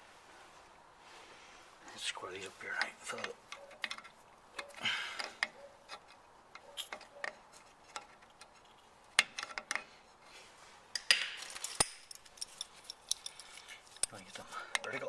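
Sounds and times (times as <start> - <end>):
metal brake parts clicking: 11.0 - 15.0
metal rattle: 11.0 - 15.0.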